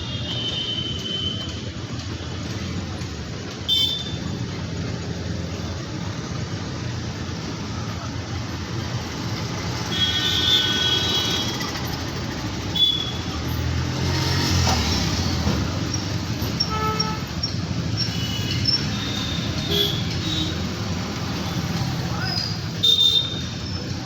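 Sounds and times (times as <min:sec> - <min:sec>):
road traffic rumble: 0:00.0 - 0:24.0
vehicle horns honking: 0:03.7 - 0:04.2, 0:09.9 - 0:11.7, 0:12.7 - 0:13.3, 0:16.6 - 0:17.4, 0:18.0 - 0:20.7, 0:22.8 - 0:23.6.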